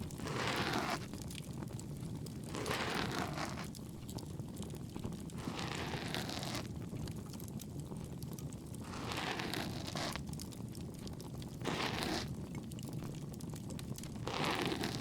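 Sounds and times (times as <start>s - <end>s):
ear pick scratching in ear: 0.0s - 1.1s, 2.5s - 3.7s, 5.4s - 6.7s, 8.9s - 10.2s, 11.6s - 12.3s, 14.2s - 15.0s
bonfire crackling: 1.1s - 2.5s.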